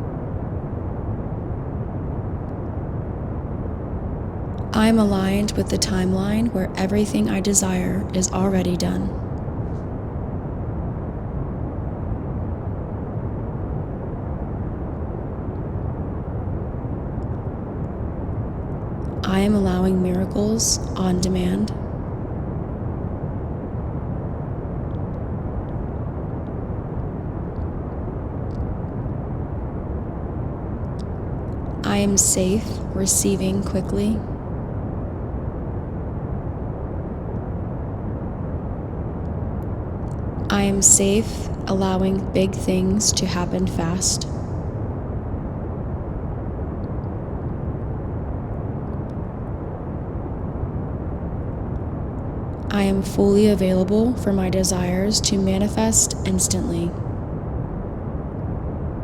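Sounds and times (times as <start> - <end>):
steady pink noise: 0.0 - 59.0.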